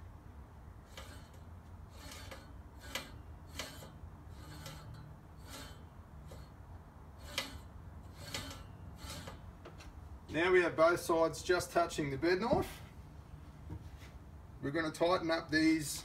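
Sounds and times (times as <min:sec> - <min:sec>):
mower blades scraping and ticking: 0:00.7 - 0:11.9.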